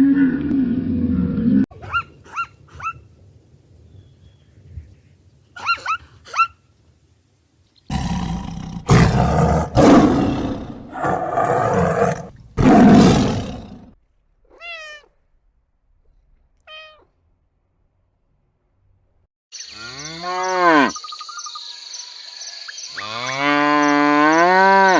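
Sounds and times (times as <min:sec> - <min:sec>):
large animal roaring: 0:07.9 - 0:14.0.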